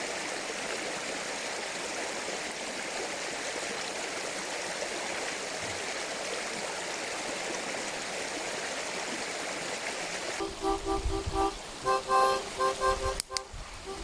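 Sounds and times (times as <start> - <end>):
mountain stream rushing: 0.0 - 14.0
background music with rhythmic beat: 10.4 - 14.0.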